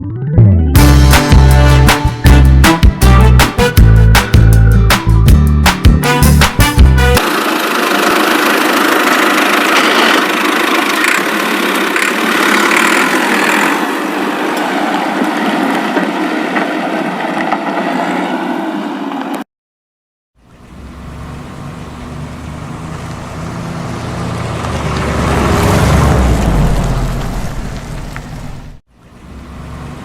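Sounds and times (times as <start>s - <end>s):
engine-like running noise: 7.1s - 19.4s, 20.4s - 30.0s.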